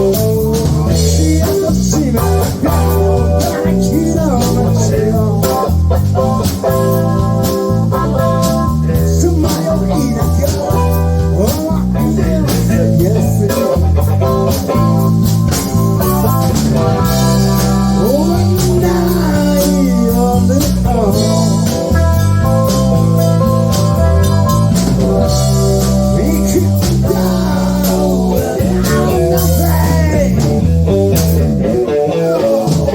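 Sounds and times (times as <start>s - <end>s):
guitar melody with bent notes: 0.0s - 32.9s
live band playing blues-rock: 0.0s - 32.9s.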